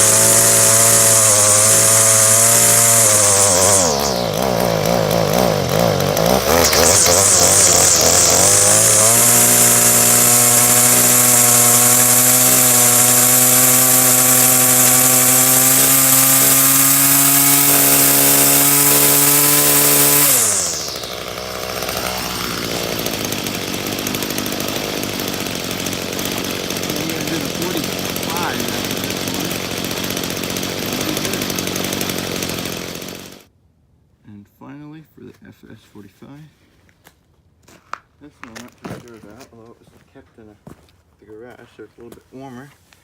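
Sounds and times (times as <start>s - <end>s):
string trimmer engine running: 0.0s - 33.5s.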